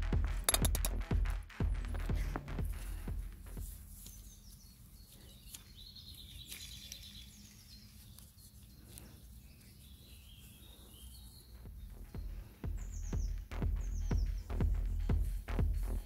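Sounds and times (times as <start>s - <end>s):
faint bird chirps: 3.9s - 15.3s.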